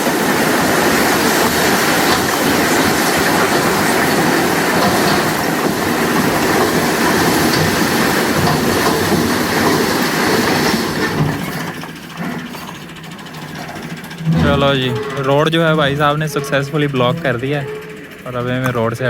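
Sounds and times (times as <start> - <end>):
bricks sliding and clattering: 0.0 - 15.2.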